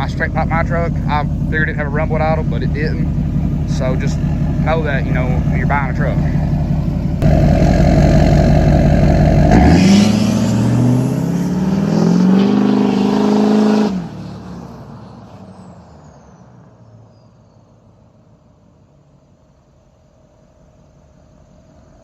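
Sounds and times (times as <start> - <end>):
diesel engine idling and revving: 0.0 - 17.6.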